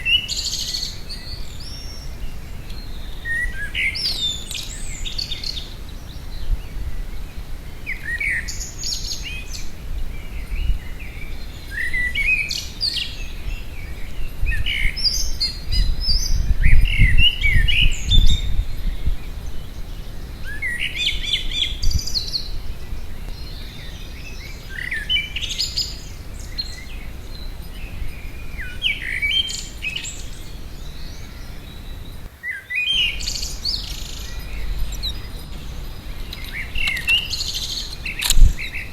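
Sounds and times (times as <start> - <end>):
songbird singing: 0.0 - 38.9
low rumble: 33.2 - 38.7.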